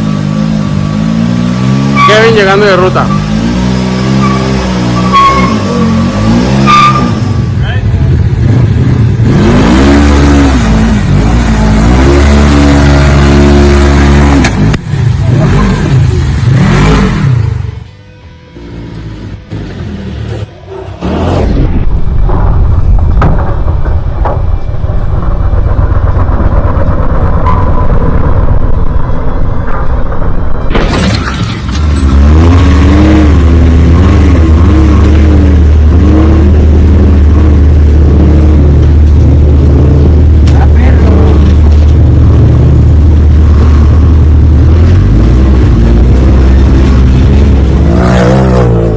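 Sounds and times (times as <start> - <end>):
vehicle engine revving: 0.0 - 17.8, 18.9 - 48.9
sharp knock: 22.2 - 24.6.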